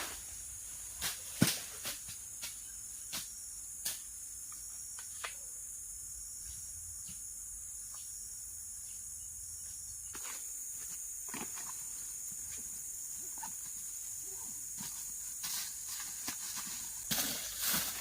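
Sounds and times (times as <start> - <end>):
insect chorus chirring: 0.0 - 18.0
rustling noise: 14.7 - 18.0.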